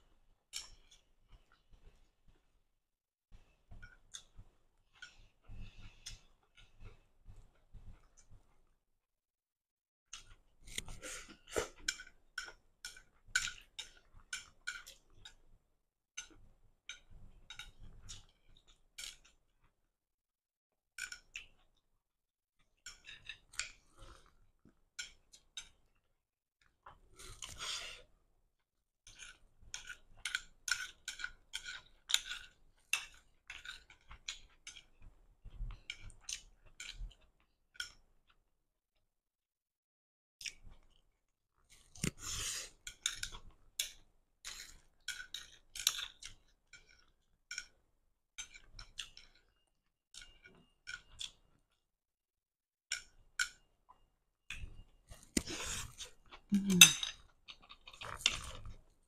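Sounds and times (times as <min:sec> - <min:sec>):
close chewing with wet smacking: 0:29.1 - 0:38.4, 0:57.2 - 0:59.0.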